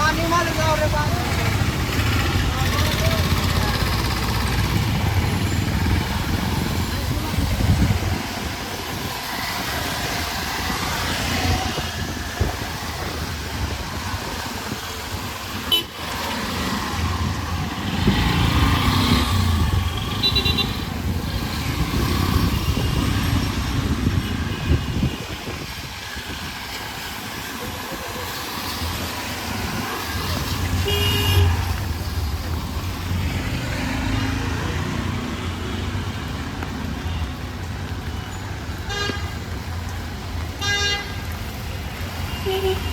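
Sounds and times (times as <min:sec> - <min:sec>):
voices: 0:00.0 - 0:25.4
street traffic engines: 0:00.0 - 0:42.9.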